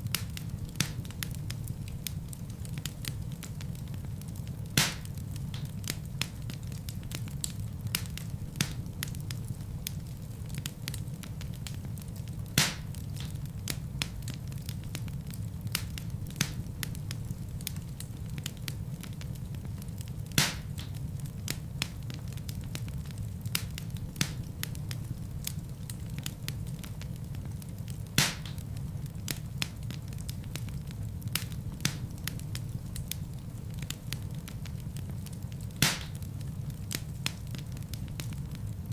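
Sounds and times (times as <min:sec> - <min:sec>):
fire rumbling: 0:00.0 - 0:38.9
logs crackling and popping: 0:00.0 - 0:38.9.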